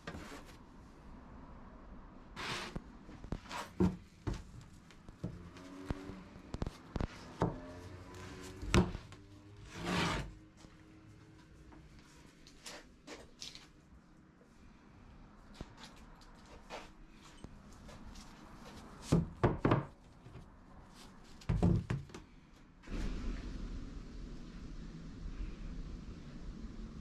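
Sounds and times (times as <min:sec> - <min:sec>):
low rumble: 0:22.9 - 0:27.0.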